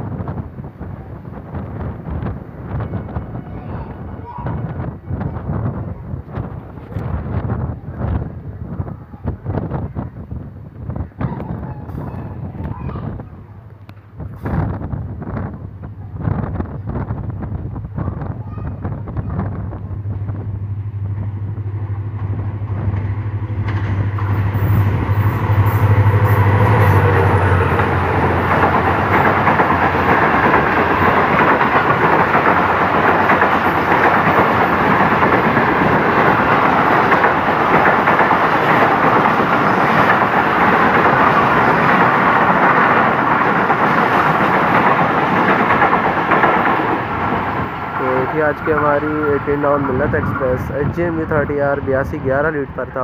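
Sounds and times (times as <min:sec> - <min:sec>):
diesel locomotive passing: 0:00.0 - 0:53.0
train wheels rumbling on rails: 0:00.0 - 0:53.0.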